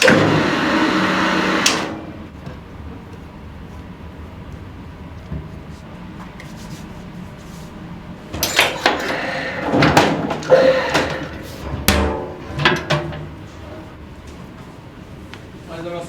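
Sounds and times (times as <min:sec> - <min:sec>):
kitchen knocks and clattering: 0:09.7 - 0:13.4.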